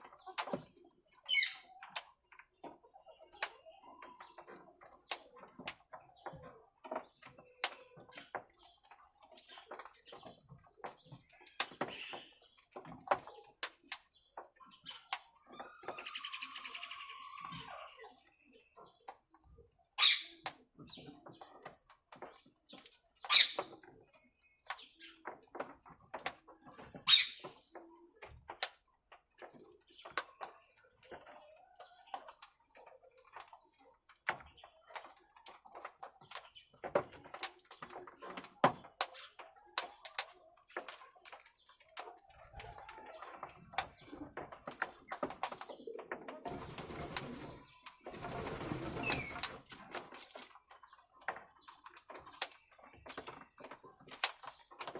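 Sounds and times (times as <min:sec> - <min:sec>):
parakeet chatter: 0:26.8 - 0:27.7, 0:46.5 - 0:49.6.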